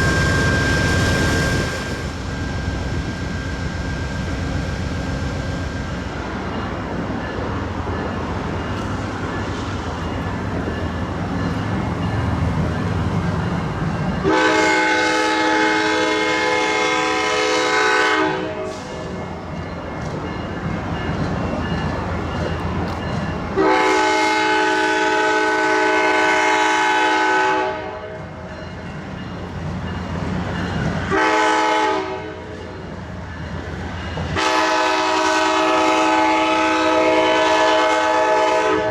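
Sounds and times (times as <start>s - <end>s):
diesel locomotive rumbling: 0.0s - 38.9s
train horn blasts: 14.2s - 18.8s, 23.6s - 28.2s, 31.1s - 32.5s, 34.4s - 38.9s.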